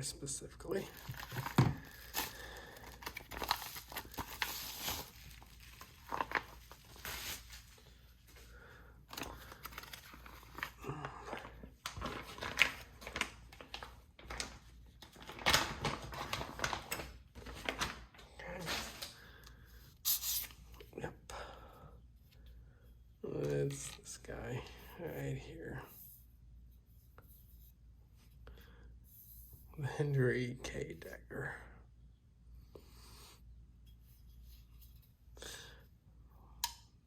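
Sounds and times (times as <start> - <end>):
packaging crinkling: 0.8 - 8.0, 9.1 - 19.3.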